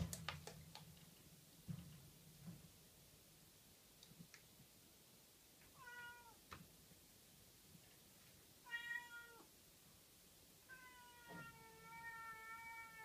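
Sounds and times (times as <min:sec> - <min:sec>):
kitten meowing: 0:05.8 - 0:06.4, 0:08.7 - 0:09.5.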